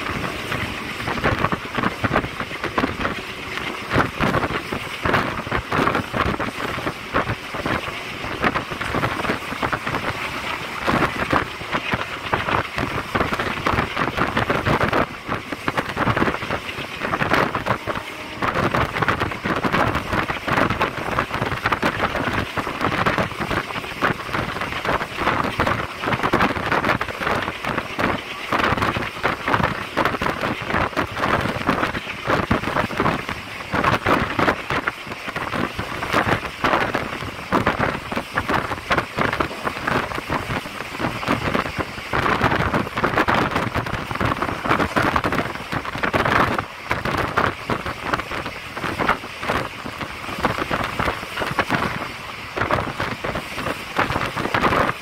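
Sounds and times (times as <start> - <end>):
train wheels rattling on track: 0.0 - 55.0
wind on microphone: 0.0 - 55.0.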